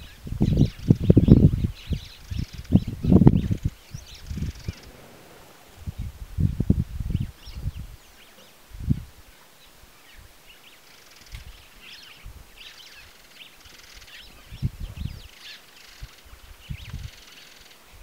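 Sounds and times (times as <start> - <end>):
small birds chirping and twittering: 0.0 - 18.0
low dull thumps: 4.3 - 8.0.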